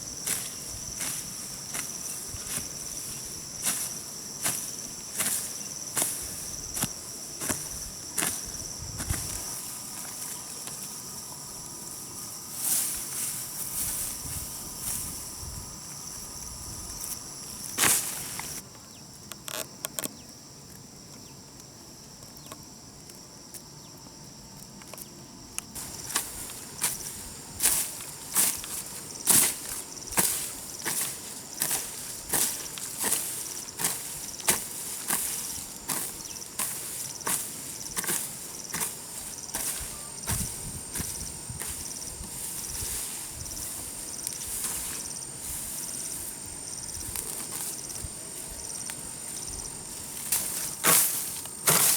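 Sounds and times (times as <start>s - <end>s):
insects chirring: 0.0s - 51.9s
hand tool striking: 25.8s - 42.4s.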